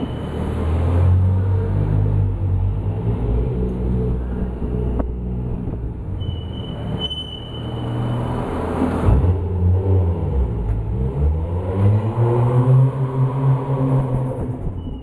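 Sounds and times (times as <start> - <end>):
car engine echoing in garage: 0.0 - 15.0
thin high whistle: 6.2 - 8.3.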